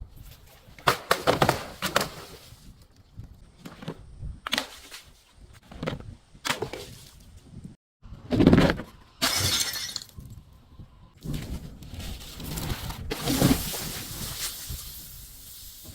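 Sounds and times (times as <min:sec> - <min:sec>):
glass bottles breaking: 0:09.2 - 0:10.2.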